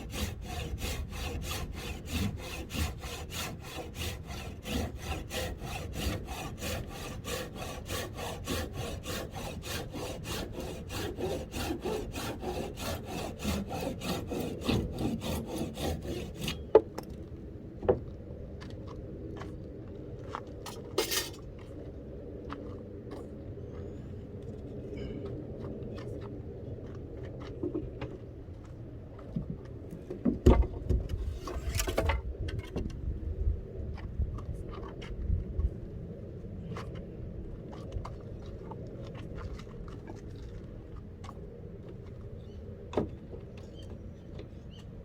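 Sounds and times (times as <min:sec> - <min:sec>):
hand saw cutting wood: 0:00.0 - 0:16.8, 0:31.2 - 0:32.1.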